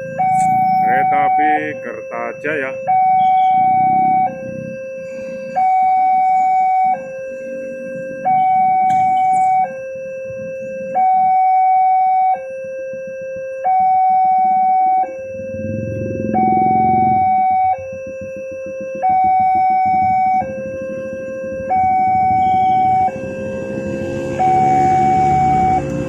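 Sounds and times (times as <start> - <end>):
level crossing two-tone alarm: 0.0 - 26.0
low rumble: 15.2 - 18.4.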